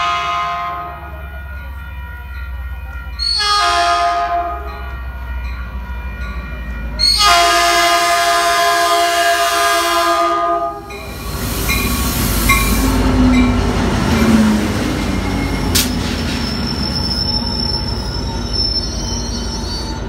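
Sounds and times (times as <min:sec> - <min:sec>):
train horn: 0:00.0 - 0:11.0
locomotive engine rumbling: 0:00.0 - 0:20.0
thin steady wheel squeal: 0:15.3 - 0:20.0
short high squeals: 0:15.4 - 0:20.0
sharp click: 0:15.7 - 0:16.0.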